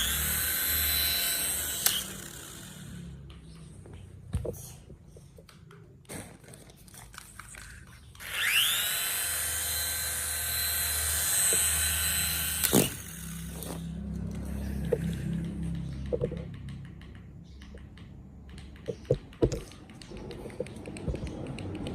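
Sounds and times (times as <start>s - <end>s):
small electric motor whine: 0.0s - 3.3s, 8.2s - 15.4s.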